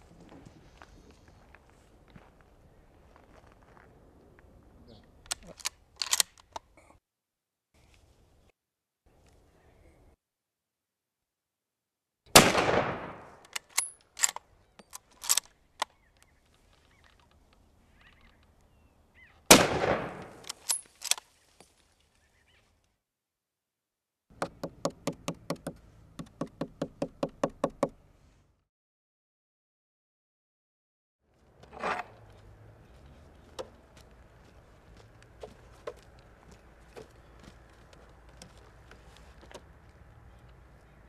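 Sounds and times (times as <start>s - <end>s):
sharp metallic clicks: 5.2s - 6.7s, 13.4s - 16.3s
rifle shots echoing: 12.3s - 13.4s, 19.5s - 20.8s
rapid knocks: 24.4s - 27.9s.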